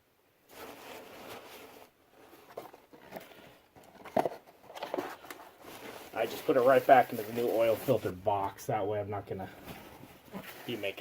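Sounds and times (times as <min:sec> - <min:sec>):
rustling: 0:00.4 - 0:11.0.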